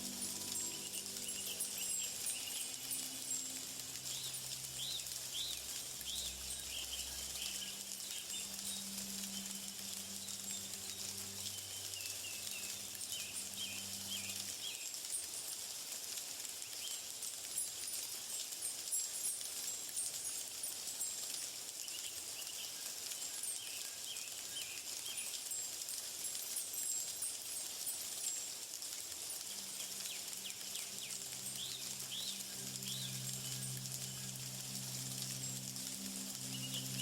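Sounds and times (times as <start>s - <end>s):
small birds chirping: 0.0s - 15.2s, 29.3s - 37.0s
steady high hiss: 0.0s - 37.0s.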